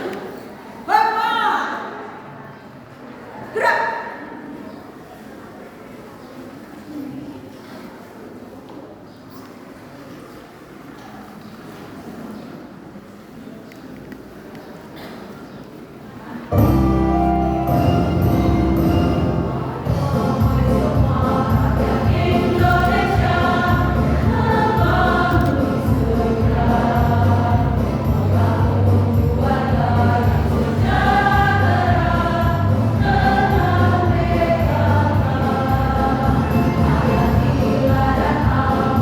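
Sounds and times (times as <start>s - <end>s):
choir singing: 16.5s - 39.0s
low bass accompaniment: 16.6s - 39.0s.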